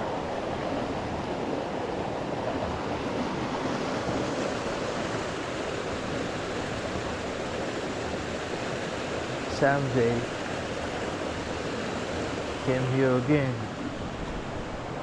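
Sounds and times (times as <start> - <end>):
waterfall rushing: 9.0 - 14.2.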